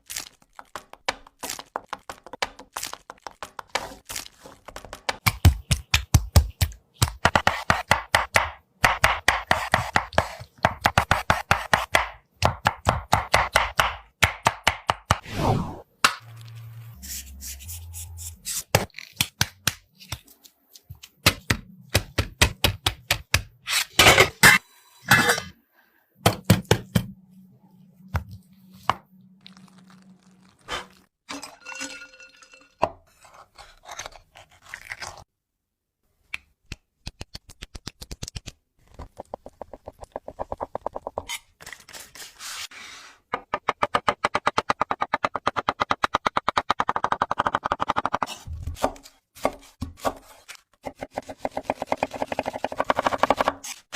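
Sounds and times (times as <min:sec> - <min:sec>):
knife chopping on a cutting board: 0:05.1 - 0:15.2, 0:45.6 - 0:53.8
knife scraping a cutting board: 0:33.1 - 0:35.2.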